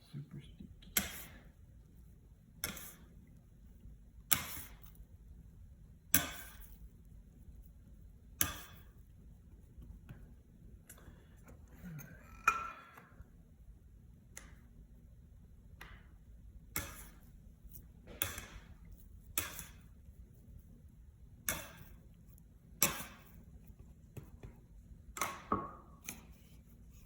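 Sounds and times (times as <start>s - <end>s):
dough slapping on countertop: 0.9s - 1.6s, 2.6s - 3.2s, 4.2s - 5.0s, 6.1s - 6.9s, 7.6s - 10.4s, 15.7s - 20.6s, 21.4s - 22.1s, 22.7s - 27.0s.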